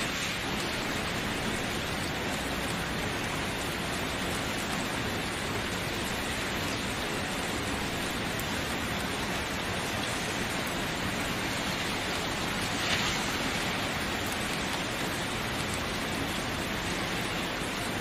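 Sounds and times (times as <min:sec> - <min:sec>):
steady rainfall: 0:00.0 - 0:18.0.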